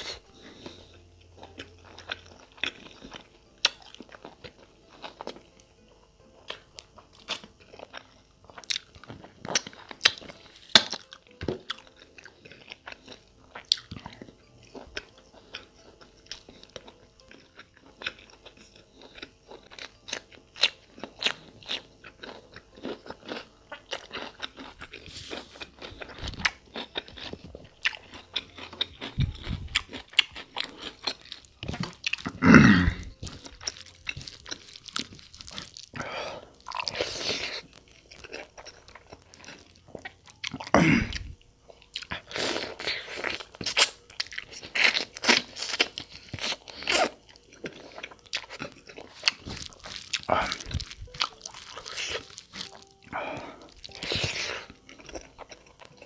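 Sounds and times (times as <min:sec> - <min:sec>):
chewing and wet smacking: 0:06.5 - 0:32.4, 0:33.2 - 0:56.0
crunchy cucumber bites: 0:17.2 - 0:56.0.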